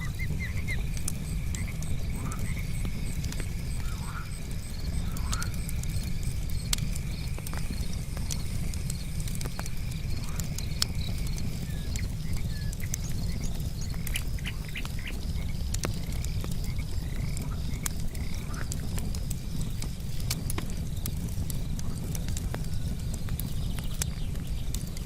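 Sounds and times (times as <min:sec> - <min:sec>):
frogs calling: 0:00.0 - 0:19.7
campfire wood crackling: 0:00.0 - 0:25.0
night insects trilling: 0:00.0 - 0:25.0.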